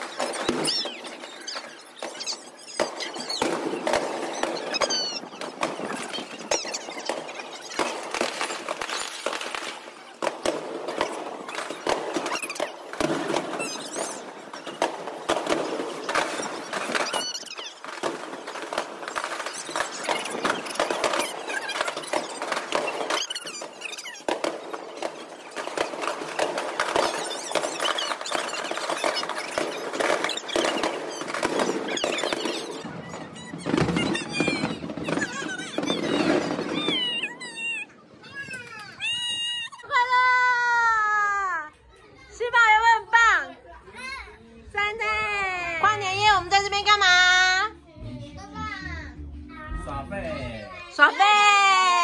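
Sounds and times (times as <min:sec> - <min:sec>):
fireworks popping and crackling: 0:00.0 - 0:41.4, 0:44.8 - 0:47.7, 0:50.3 - 0:52.0
firework whistle: 0:10.9 - 0:38.0.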